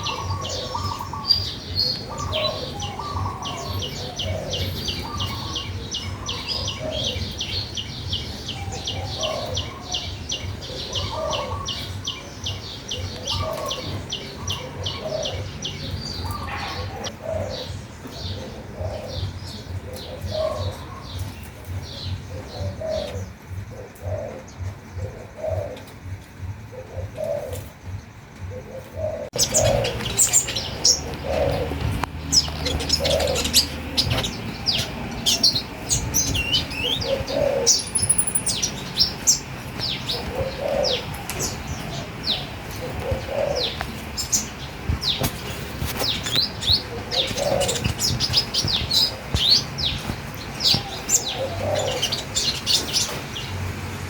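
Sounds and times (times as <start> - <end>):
lower bird calls: 0.0 - 53.8
fast high bird chirps: 29.3 - 40.1.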